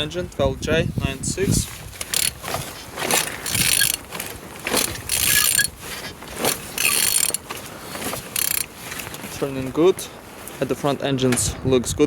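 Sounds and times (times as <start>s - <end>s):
engine internals turning: 1.3s - 9.8s
ratchet wrench clicking: 2.0s - 5.7s, 6.4s - 7.4s, 8.4s - 8.7s.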